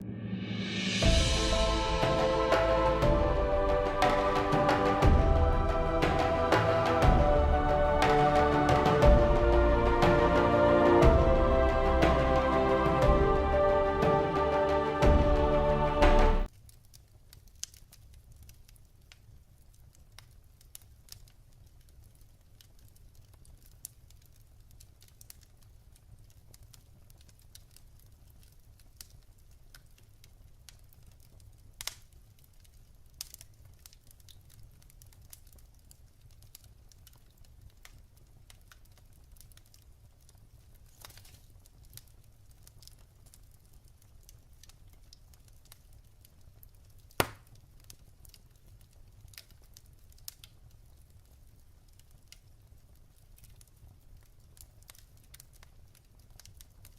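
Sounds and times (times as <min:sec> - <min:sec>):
low steady fire rumble: 0:00.0 - 0:56.9
fire snaps and pops: 0:16.4 - 0:56.9.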